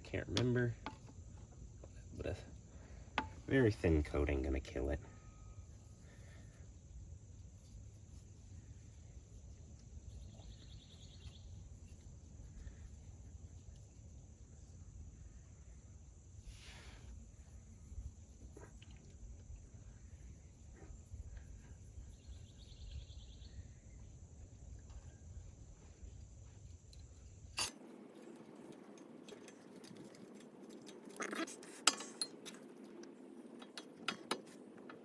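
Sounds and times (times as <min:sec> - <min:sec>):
metallic clinks and taps of tools: 0:03.2 - 0:03.4, 0:26.6 - 0:35.0
thin steady high tone: 0:03.2 - 0:06.6.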